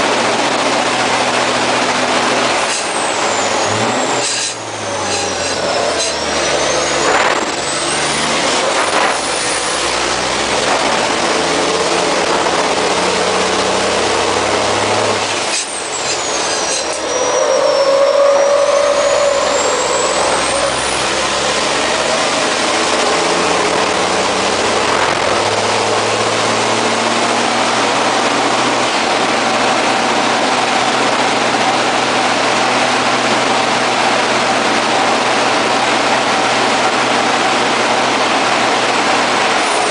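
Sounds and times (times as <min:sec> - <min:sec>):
diesel truck engine accelerating: 0:00.0 - 0:39.9
high whistle: 0:03.1 - 0:07.8, 0:15.6 - 0:21.5.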